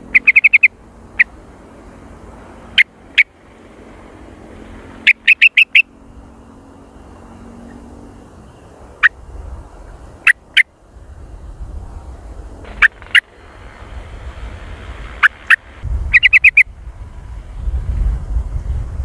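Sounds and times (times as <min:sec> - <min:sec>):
bird chirping: 0:00.0 - 0:01.3, 0:05.0 - 0:06.5, 0:15.2 - 0:16.7.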